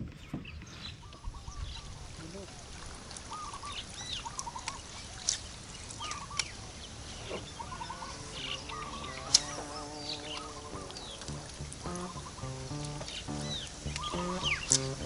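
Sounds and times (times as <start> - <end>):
birds chirping: 0.0 - 15.0
steady pitched tone: 7.8 - 15.0
sharp clicks: 9.2 - 9.7, 10.3 - 15.0.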